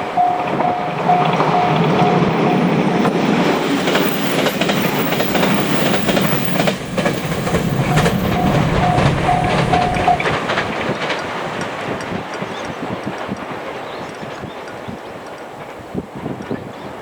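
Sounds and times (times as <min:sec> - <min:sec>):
crossing warning bell ringing: 0:00.0 - 0:10.7
train wheels clattering: 0:00.0 - 0:15.8.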